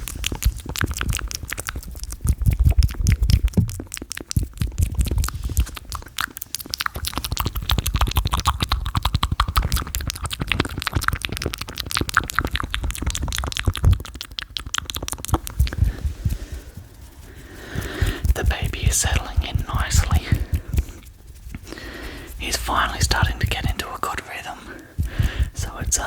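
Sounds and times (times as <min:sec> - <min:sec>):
mouth clicks and smacks: 0:00.0 - 0:26.0
low thumps: 0:24.9 - 0:26.0.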